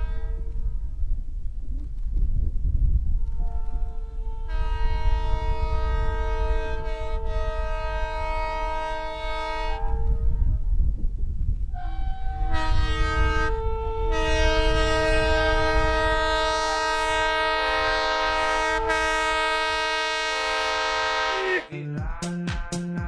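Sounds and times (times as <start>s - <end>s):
locomotive air horn: 0.0s - 0.5s, 3.2s - 10.6s, 11.7s - 21.7s
train rumbling: 0.0s - 23.0s.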